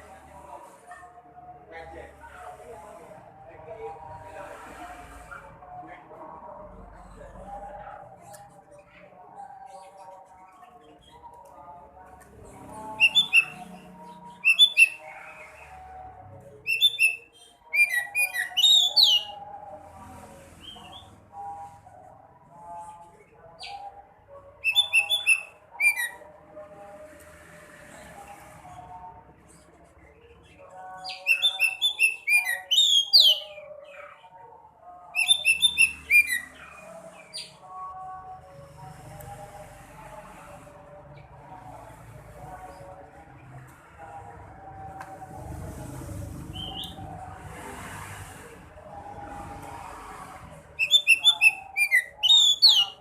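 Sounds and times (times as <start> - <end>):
bird chirping phrases: 12.6 - 15.9, 16.6 - 19.4, 24.6 - 26.2, 30.3 - 34.3, 35.1 - 37.7, 50.8 - 53.0.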